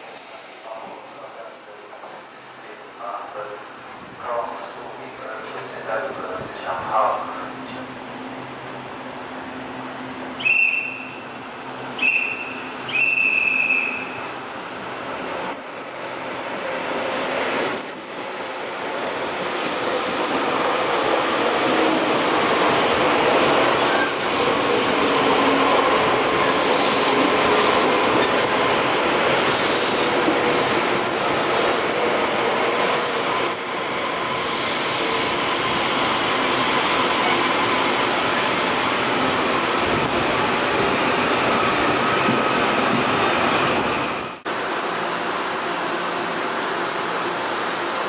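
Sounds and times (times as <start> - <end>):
train wheel and rail rush: 0.0 - 48.0
high wheel squeals: 40.7 - 43.6.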